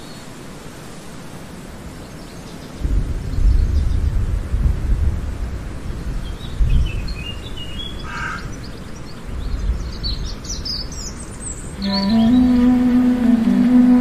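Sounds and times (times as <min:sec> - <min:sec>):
low background noise: 0:00.0 - 0:14.0
birds chirping: 0:05.9 - 0:14.0
music with held low note: 0:11.8 - 0:14.0.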